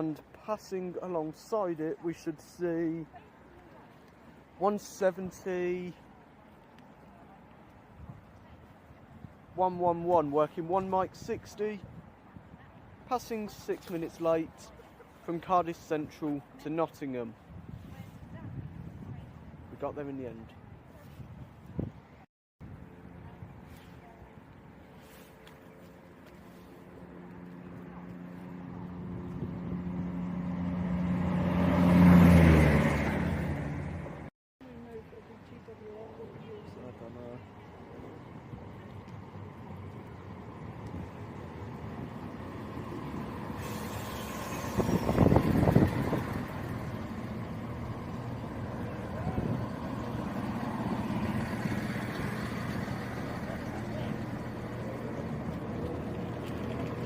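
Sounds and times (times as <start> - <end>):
diesel train passing: 39.6 - 57.0.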